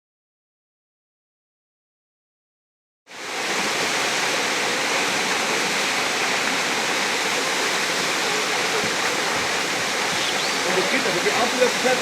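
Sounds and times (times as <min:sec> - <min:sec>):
water rushing: 0:03.1 - 0:12.0.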